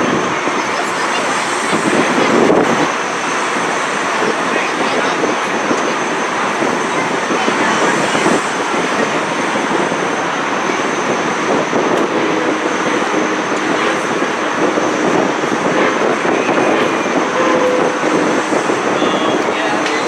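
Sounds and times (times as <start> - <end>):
train running: 0.0 - 20.0.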